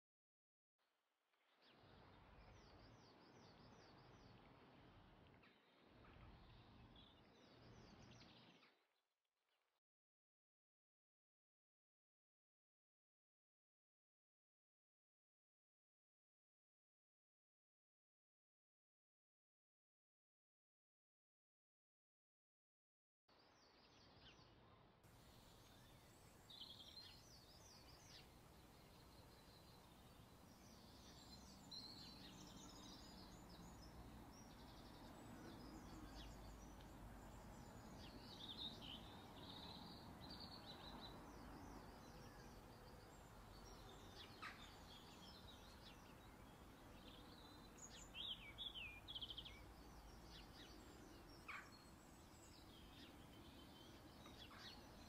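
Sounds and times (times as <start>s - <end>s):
low steady background noise: 0.9s - 9.0s, 23.3s - 55.0s
faint bird chirps: 23.3s - 55.0s.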